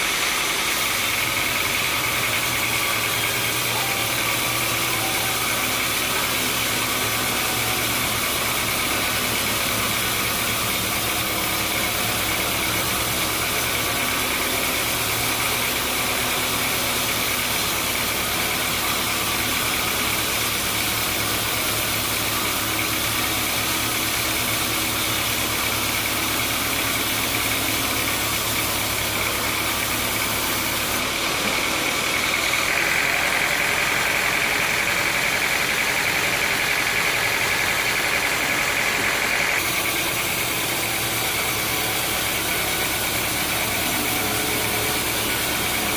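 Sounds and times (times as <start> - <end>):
high machine whine: 0.0 - 45.9.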